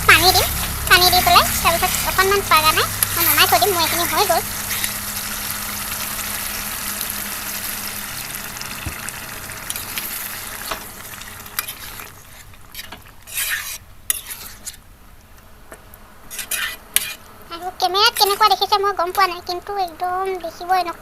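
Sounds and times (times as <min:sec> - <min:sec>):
curry sizzling in a hot pan: 0:00.0 - 0:14.8, 0:16.3 - 0:20.8
spoon scraping a pan: 0:00.3 - 0:06.0, 0:11.5 - 0:14.8, 0:16.3 - 0:17.3, 0:18.0 - 0:19.3.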